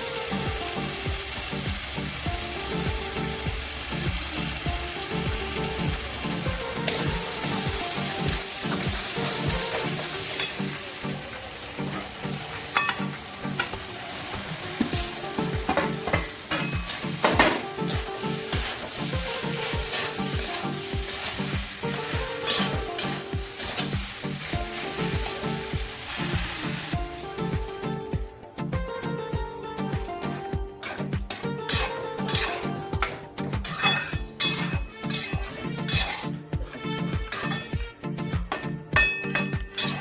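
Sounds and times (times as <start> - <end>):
food sizzling in hot oil: 0.0 - 40.0
light background music: 0.0 - 40.0
utensil clicking against pan: 30.8 - 37.7, 38.4 - 40.0.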